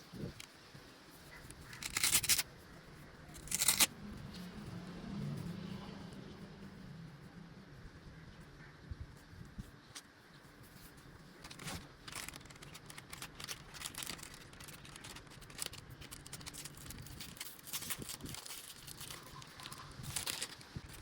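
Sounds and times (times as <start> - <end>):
packaging crinkling and rustling: 1.5 - 2.5, 3.4 - 3.9, 11.4 - 21.0.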